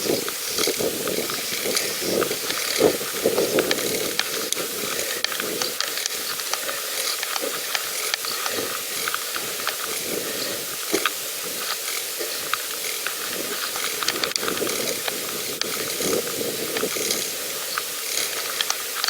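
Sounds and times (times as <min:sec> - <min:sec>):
bicycle clicks and rattles: 0:00.0 - 0:19.0
bicycle riding hiss: 0:00.0 - 0:19.0.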